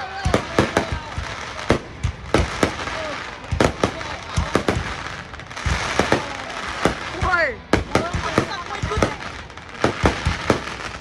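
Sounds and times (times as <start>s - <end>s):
crowd hubbub: 0.0s - 11.0s
fireworks bangs: 0.0s - 11.0s.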